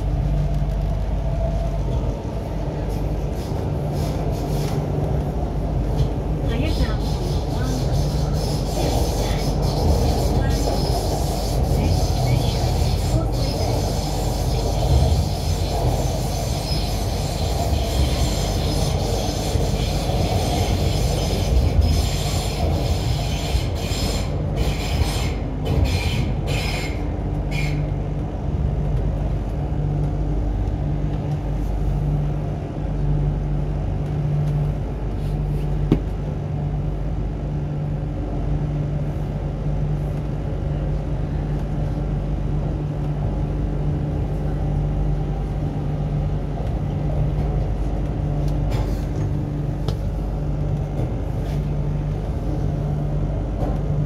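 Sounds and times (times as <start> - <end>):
train interior low hum: 0.0 - 54.0.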